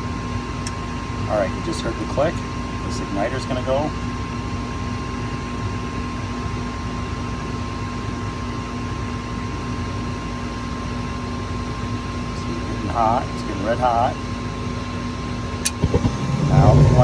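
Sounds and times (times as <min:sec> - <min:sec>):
furnace fan motor humming: 0:15.6 - 0:17.0.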